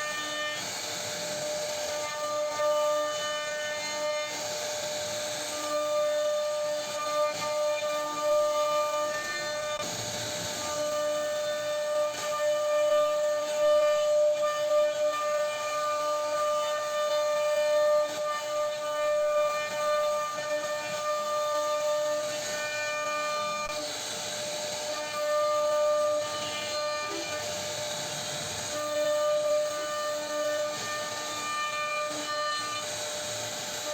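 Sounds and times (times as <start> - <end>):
bit cutting wood: 0.0 - 33.9
router spindle whining: 0.0 - 33.9.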